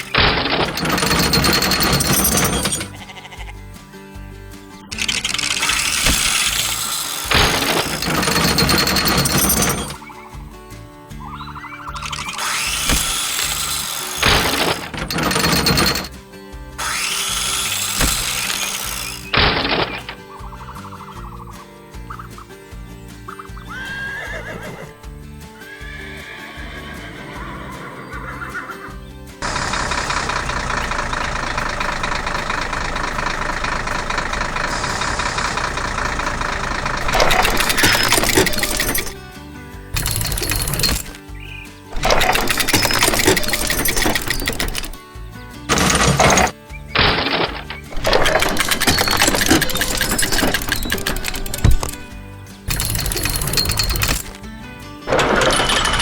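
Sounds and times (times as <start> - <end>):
farm machine engine running: 0.0 - 3.3, 4.4 - 10.1, 12.0 - 20.3, 29.4 - 54.5, 55.1 - 56.0
background music: 0.0 - 31.0, 37.0 - 56.0
drill-like whir: 4.9 - 10.0, 12.0 - 16.1, 16.8 - 20.2
crackling and crunching: 45.7 - 54.4.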